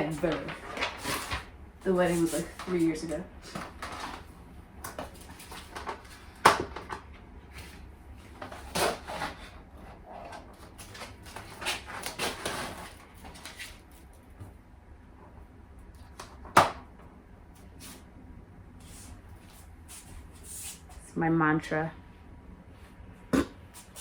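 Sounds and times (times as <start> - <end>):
items knocking and clattering: 4.9 - 7.2.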